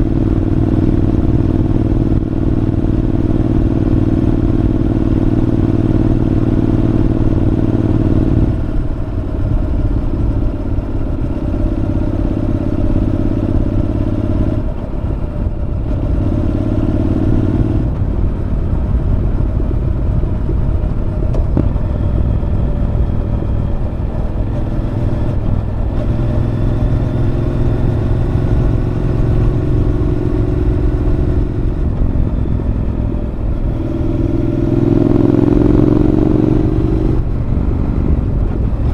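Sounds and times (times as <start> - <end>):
motorcycle exhaust note: 0.0 - 38.9
road and wind noise: 0.0 - 38.9.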